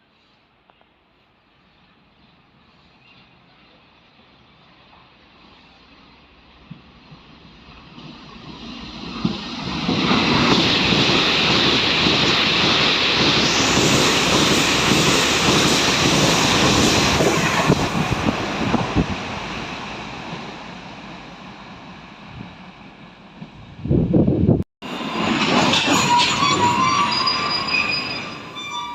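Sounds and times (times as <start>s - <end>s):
train rumble: 1.0s - 28.9s
wheels clattering on rails: 24.9s - 28.9s.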